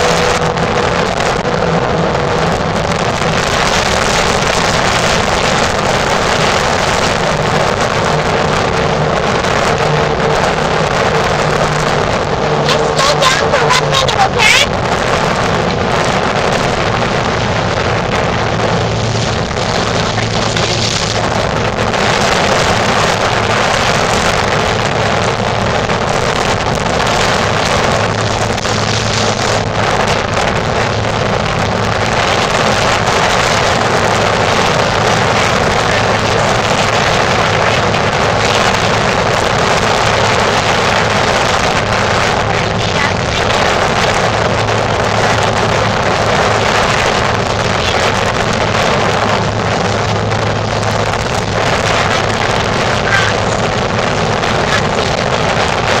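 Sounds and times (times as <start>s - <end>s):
outboard motor running: 0.0s - 56.0s
water rushing against hull: 0.0s - 56.0s
wind buffeting microphone: 0.0s - 56.0s.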